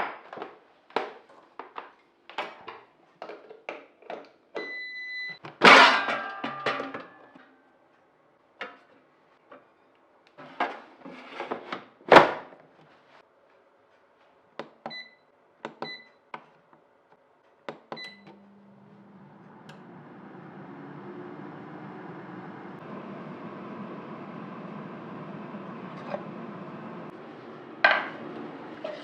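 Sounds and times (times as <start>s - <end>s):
appliance humming: 17.9s - 29.0s.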